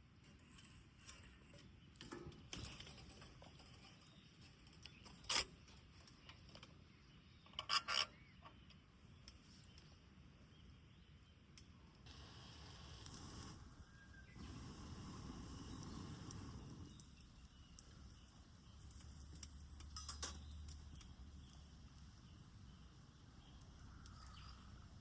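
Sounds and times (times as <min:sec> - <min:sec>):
campfire crackling: 0:11.6 - 0:25.0
fire popping: 0:11.6 - 0:25.0.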